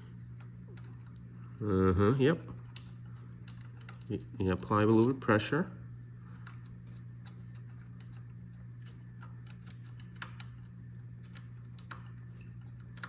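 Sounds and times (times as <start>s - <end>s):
steady low hum: 0.0s - 13.0s
allen key clicking on screw: 9.2s - 13.0s.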